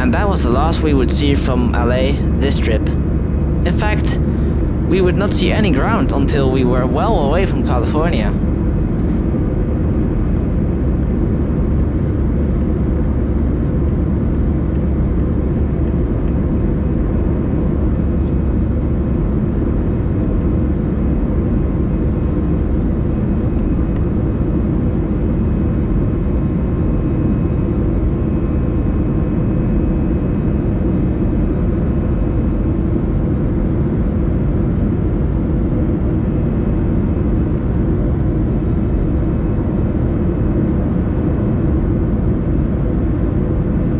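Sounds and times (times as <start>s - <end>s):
airflow and engine drone: 0.0s - 9.2s
faint hum tones: 0.0s - 9.2s.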